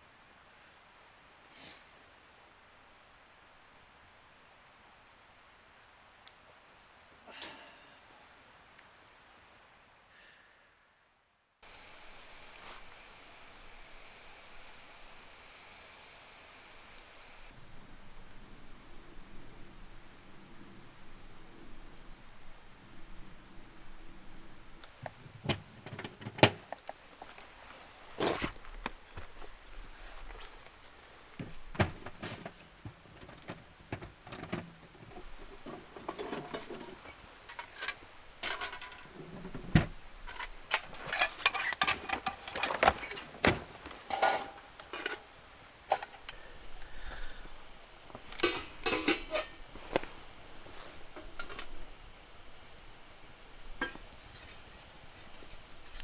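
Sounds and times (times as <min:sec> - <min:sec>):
high-pitched insect drone: 0:11.7 - 0:17.6, 0:44.1 - 0:56.0.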